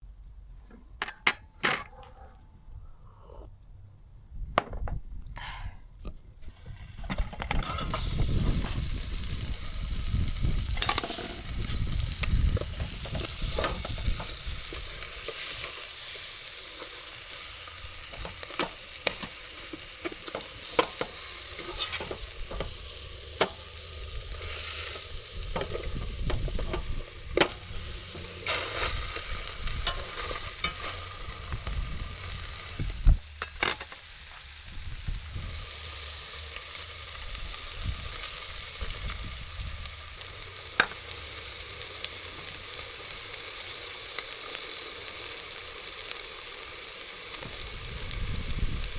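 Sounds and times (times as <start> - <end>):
chicken sizzling in a pan: 6.5 - 48.9.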